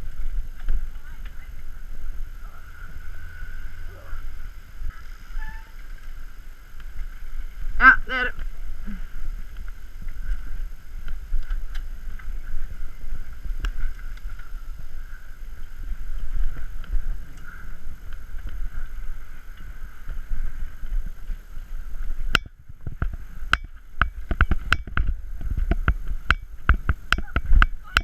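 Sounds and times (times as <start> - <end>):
mountain bike riding on trail: 0.0 - 28.0
wind rumbling on microphone: 0.0 - 28.0
bike rattles and clicks: 4.4 - 7.8, 8.4 - 28.0.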